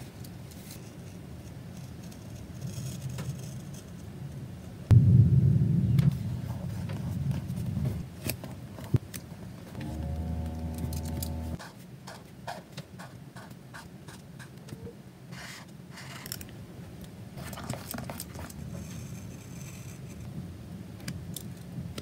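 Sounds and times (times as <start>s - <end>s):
low hum: 4.9s - 8.0s, 9.7s - 11.6s.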